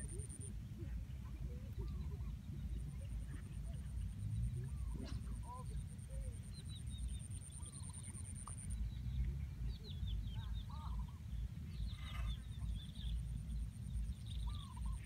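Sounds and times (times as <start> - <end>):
pulsing high-pitched insect tone: 0.0 - 0.5
small birds chirping: 0.0 - 15.0.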